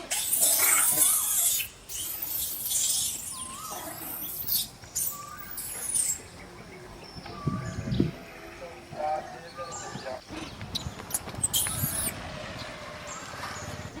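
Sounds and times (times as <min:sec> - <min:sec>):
baby monkey squeaking: 0:00.1 - 0:06.2, 0:10.8 - 0:12.2.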